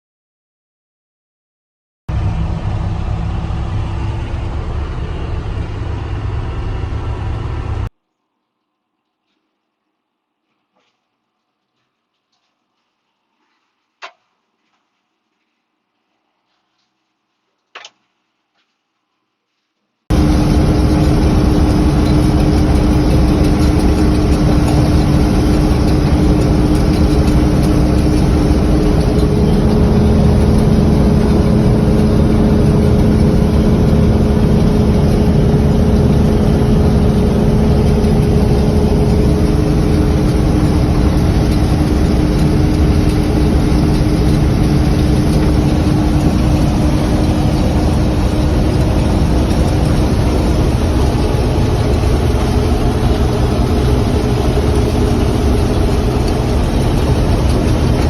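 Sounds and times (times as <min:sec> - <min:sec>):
tractor engine running: 0:02.1 - 0:07.9, 0:20.1 - 0:58.0.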